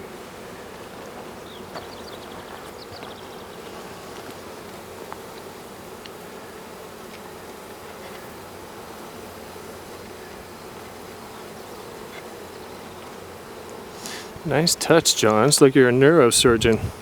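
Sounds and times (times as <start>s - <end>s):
swarm of bees buzzing: 0.0s - 17.0s
faint ticks: 5.0s - 6.2s.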